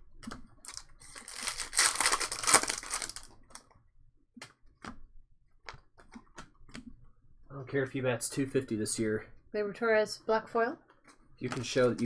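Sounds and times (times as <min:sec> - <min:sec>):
card pack wrapper crinkling: 0:00.6 - 0:03.4.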